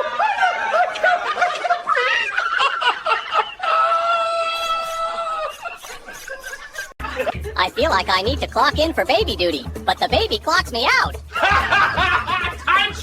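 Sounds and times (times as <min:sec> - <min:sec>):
person giggling and laughing: 0:04.7 - 0:07.9, 0:11.3 - 0:12.9.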